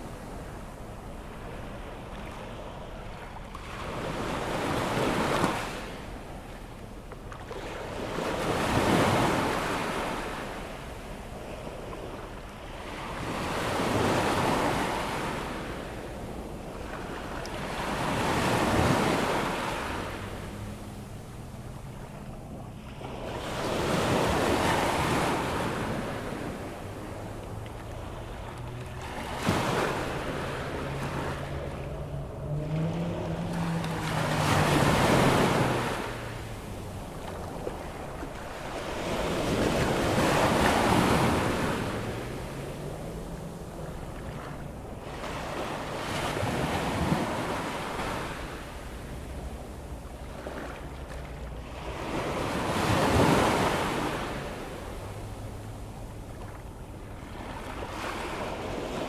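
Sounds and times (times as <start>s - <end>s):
waves breaking on beach: 0.0s - 59.0s
faint low wavering hum: 25.4s - 40.6s.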